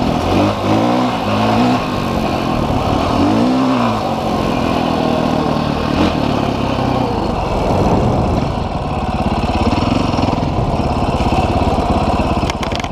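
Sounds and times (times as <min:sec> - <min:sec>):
motorcycle engine idling: 0:04.0 - 0:12.9.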